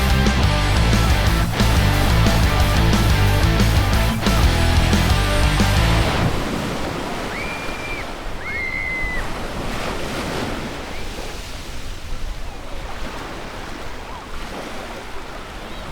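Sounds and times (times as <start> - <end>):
sea waves washing onto beach: 5.9 - 15.9
high gliding whistle tones: 7.3 - 9.2.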